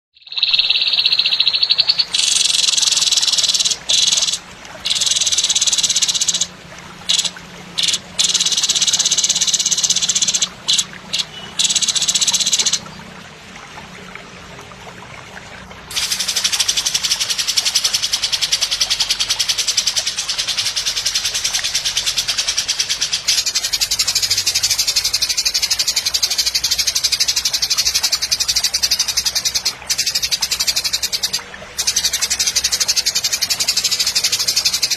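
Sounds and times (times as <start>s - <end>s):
bird buzzing trill song: 0.2s - 6.5s, 7.1s - 12.8s.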